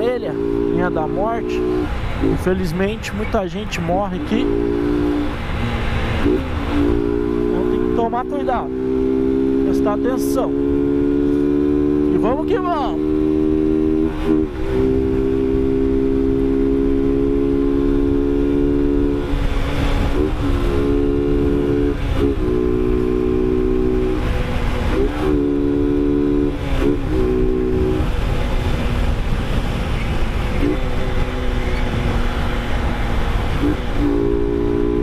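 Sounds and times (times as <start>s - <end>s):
motorcycle engine running: 0.0s - 35.0s
wind rumble on microphone: 10.4s - 35.0s.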